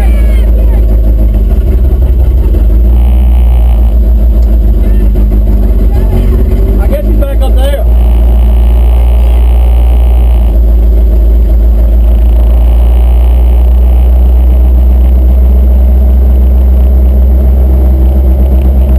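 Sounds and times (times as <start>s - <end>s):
truck engine droning: 0.0s - 18.9s.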